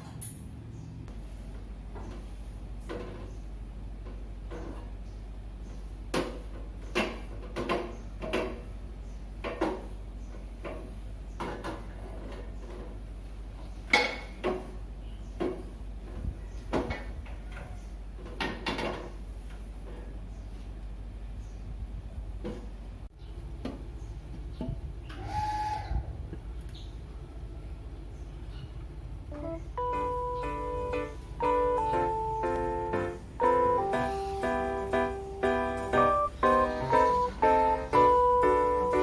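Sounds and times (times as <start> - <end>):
steady low hum: 26.0 - 39.0.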